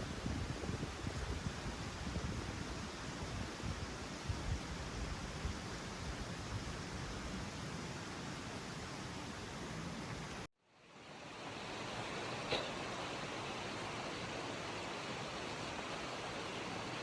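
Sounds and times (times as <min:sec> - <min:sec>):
wind buffeting microphone: 0:00.0 - 0:10.4
rushing outdoor noise: 0:00.0 - 0:17.0.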